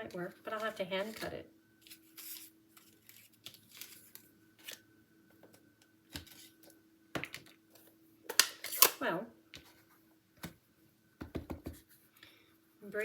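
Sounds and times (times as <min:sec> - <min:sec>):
paper rustling: 0:00.5 - 0:04.8, 0:06.1 - 0:06.7.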